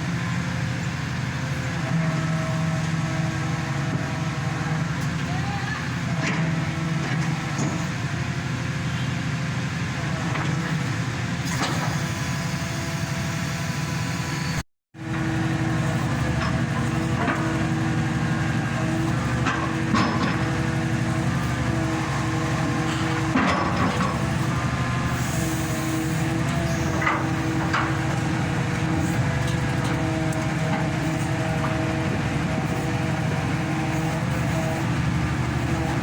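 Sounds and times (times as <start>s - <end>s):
hydraulic pumps humming: 15.1s - 36.0s.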